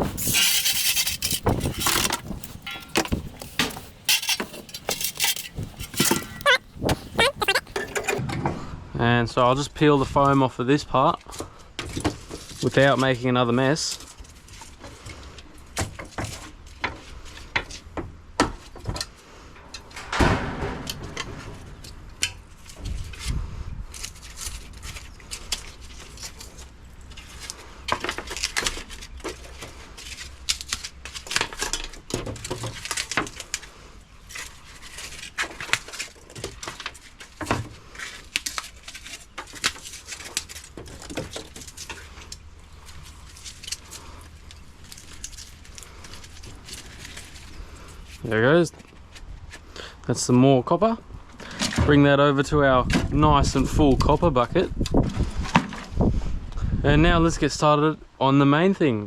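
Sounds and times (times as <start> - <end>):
foam crackling: 0.0 - 7.7
foam scraping: 0.0 - 8.2.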